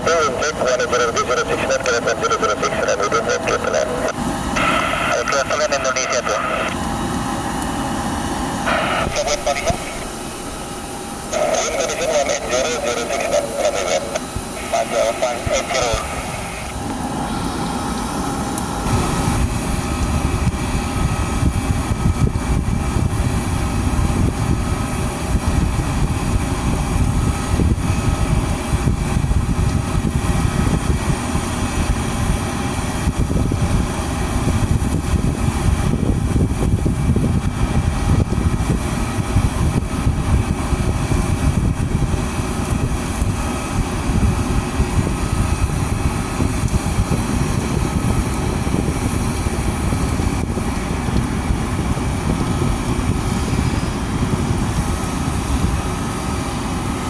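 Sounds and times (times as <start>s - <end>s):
jet aircraft engines running: 0.0s - 57.0s.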